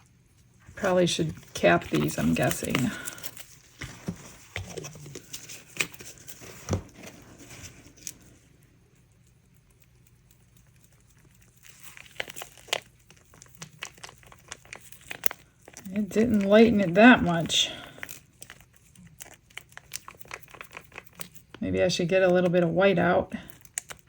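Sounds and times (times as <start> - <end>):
plastic containers clicking and crinkling: 1.1 - 8.2, 11.6 - 21.6.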